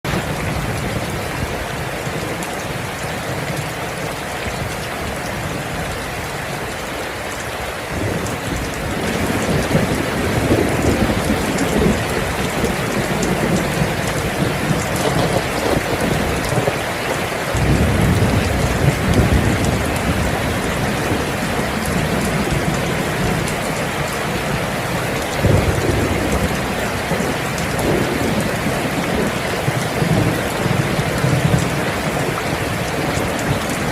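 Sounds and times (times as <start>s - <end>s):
heavy rain hissing: 0.1s - 33.9s
rolling thunder: 7.9s - 16.8s, 17.5s - 33.9s.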